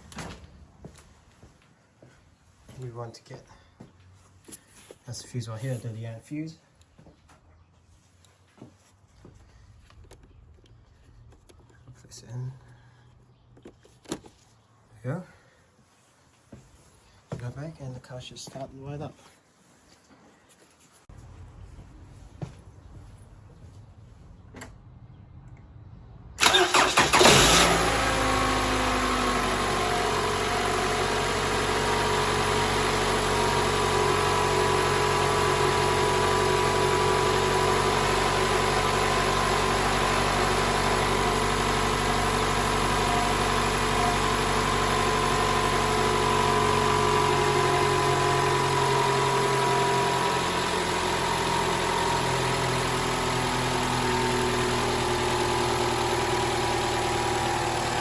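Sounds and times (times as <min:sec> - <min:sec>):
engine starter cranking: 0:26.4 - 0:29.8
car engine idling: 0:26.4 - 0:58.0.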